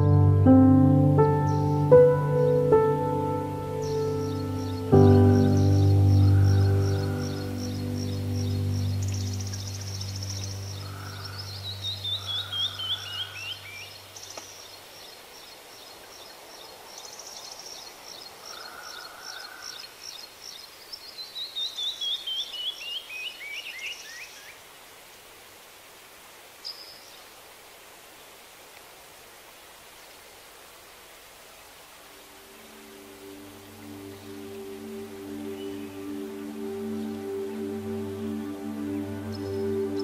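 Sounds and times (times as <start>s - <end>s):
background music: 0.0s - 12.6s, 32.3s - 40.0s
descending bird notes: 0.0s - 14.5s, 32.2s - 40.0s
soft steady hiss: 0.0s - 40.0s
songbirds singing: 1.0s - 24.7s, 26.6s - 27.4s, 32.1s - 40.0s.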